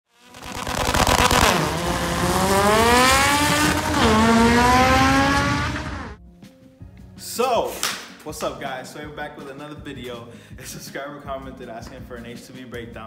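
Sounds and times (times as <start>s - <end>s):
car engine accelerating hard: 0.1s - 6.2s.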